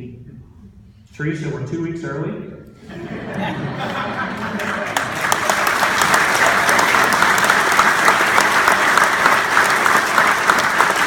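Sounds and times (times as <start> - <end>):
crowd applauding: 3.2 - 11.0.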